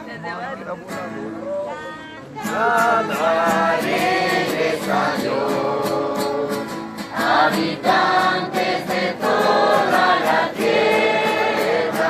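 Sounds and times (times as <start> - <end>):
group singing worship song: 2.4 - 12.0.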